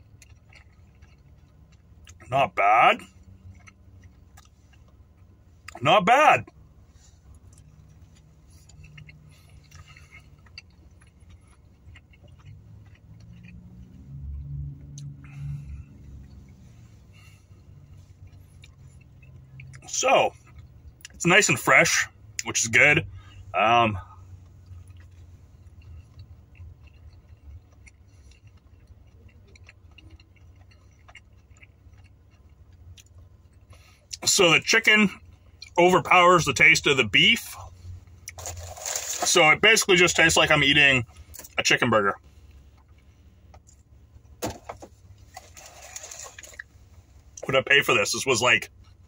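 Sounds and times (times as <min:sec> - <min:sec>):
chewing and mouth sounds: 0:00.0 - 0:02.3, 0:03.0 - 0:05.8, 0:06.4 - 0:21.2, 0:24.0 - 0:34.2
low steady hum: 0:00.0 - 0:49.0.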